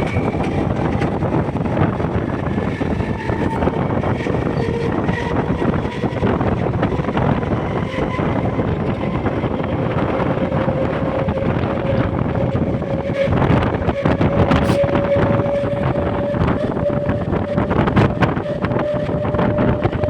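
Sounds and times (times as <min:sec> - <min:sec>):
rising whine: 0:00.0 - 0:20.0
rushing wind: 0:00.0 - 0:20.0
train rumble: 0:00.0 - 0:20.0.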